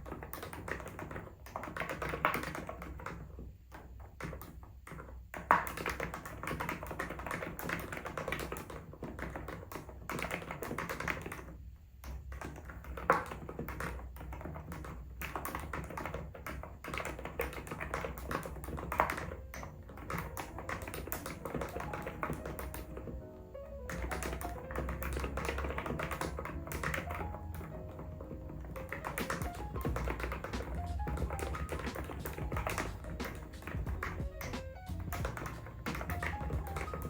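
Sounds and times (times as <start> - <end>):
keyboard typing clacks: 0.0 - 37.0.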